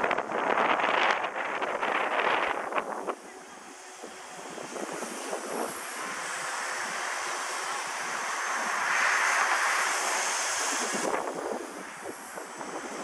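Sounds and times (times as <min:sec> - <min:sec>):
wind buffeting microphone: 0:00.0 - 0:07.2, 0:08.0 - 0:13.0
rc helicopter motor whine: 0:04.0 - 0:13.0.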